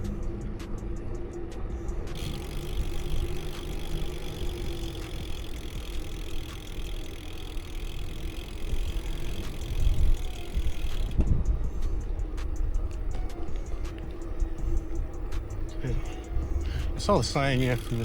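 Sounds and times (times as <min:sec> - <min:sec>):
wind rumble on microphone: 0:08.4 - 0:17.2.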